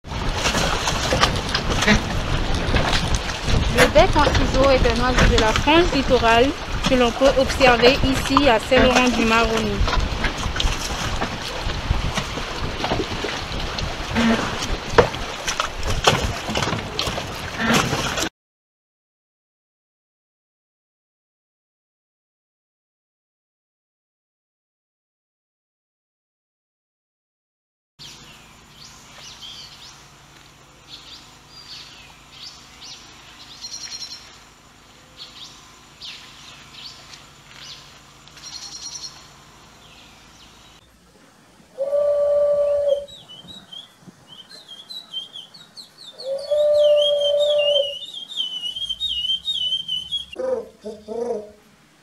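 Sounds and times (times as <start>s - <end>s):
bird warbling song: 28.0s - 30.1s, 30.8s - 34.4s, 35.0s - 40.9s, 41.8s - 51.6s
bird whistled calls: 41.8s - 51.5s.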